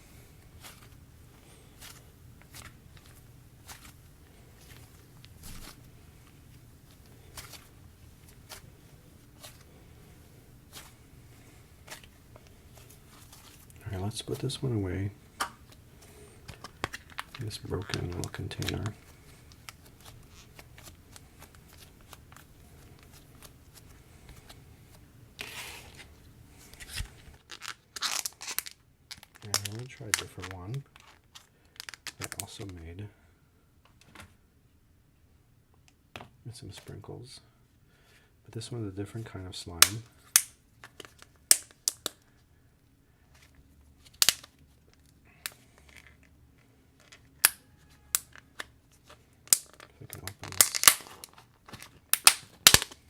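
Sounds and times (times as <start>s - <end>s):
slime squishing: 0.0s - 28.7s
plastic container rustle: 0.4s - 15.0s
plastic crackles and clicks: 26.7s - 32.6s, 49.4s - 53.0s.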